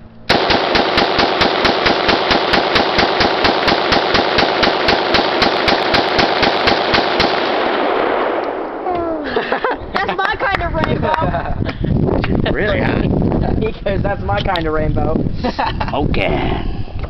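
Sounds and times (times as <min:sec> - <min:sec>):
rapid rifle shots: 0:00.3 - 0:08.8.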